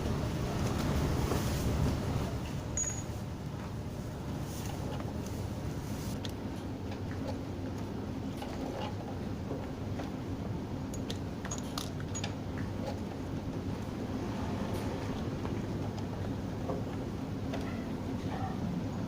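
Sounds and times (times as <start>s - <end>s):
low mechanical hum: 0.0s - 19.0s
light clicks and clinks: 2.8s - 3.2s, 10.9s - 12.7s.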